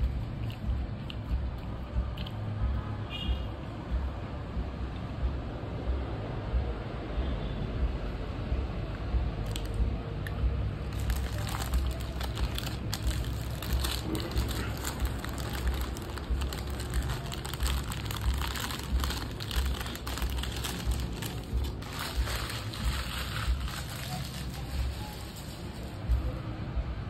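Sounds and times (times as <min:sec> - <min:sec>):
crunchy chewing of fried chicken: 0:00.0 - 0:02.4, 0:10.9 - 0:24.5
low rumble: 0:09.2 - 0:26.9.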